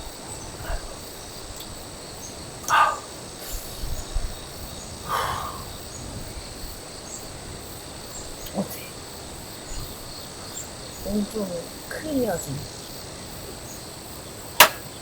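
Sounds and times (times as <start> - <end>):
insects chirring: 0.0 - 15.0
loud animal calls: 2.6 - 3.2.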